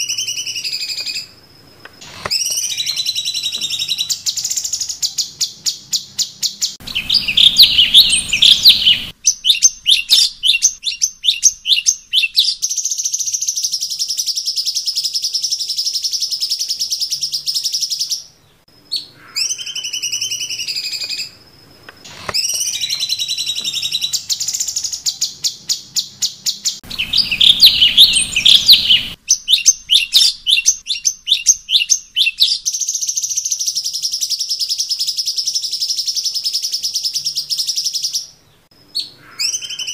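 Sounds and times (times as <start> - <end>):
bird chattering trills and chips: 2.1 - 13.5, 26.2 - 36.9
slurred bird whistles: 2.1 - 15.0, 22.2 - 38.1, 39.0 - 39.9.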